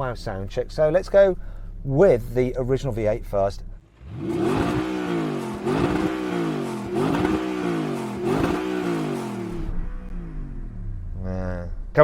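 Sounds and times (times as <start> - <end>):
car engine revving: 3.8 - 12.0.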